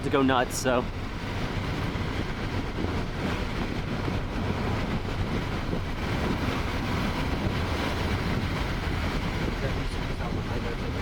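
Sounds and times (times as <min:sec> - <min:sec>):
road and engine rumble in car: 0:00.0 - 0:11.0
wind noise: 0:00.0 - 0:11.0.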